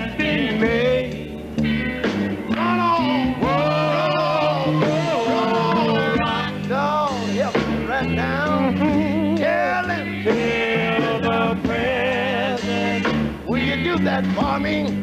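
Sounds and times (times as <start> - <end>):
bass and guitar: 0.0 - 15.0
gospel quartet singing: 0.0 - 15.0.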